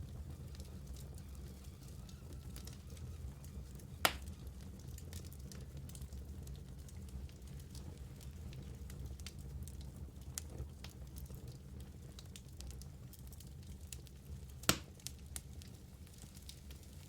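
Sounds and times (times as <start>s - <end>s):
logs crackling and popping: 0.0s - 17.0s
low rumble of flame: 0.0s - 17.0s.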